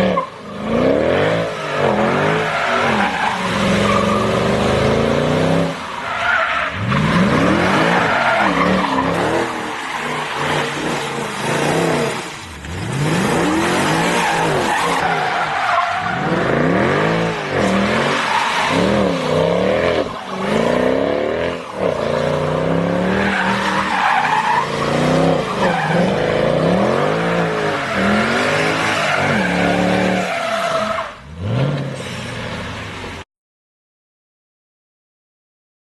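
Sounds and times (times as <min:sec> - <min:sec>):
tyres squealing on wet road: 0:00.0 - 0:33.2
car engine revving: 0:06.7 - 0:30.4.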